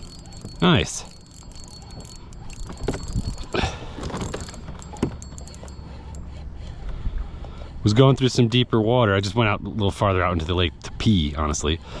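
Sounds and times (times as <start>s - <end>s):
fishing reel gears clicking: 0.0s - 6.2s.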